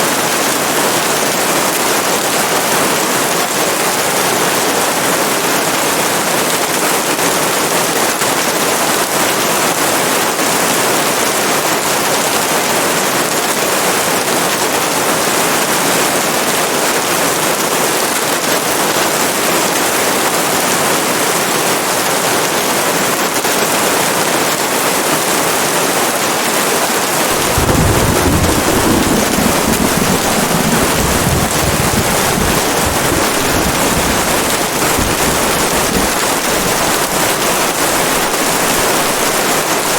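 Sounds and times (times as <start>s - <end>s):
rain hiss: 23.7s - 39.9s
thunder rumbling: 27.3s - 39.9s.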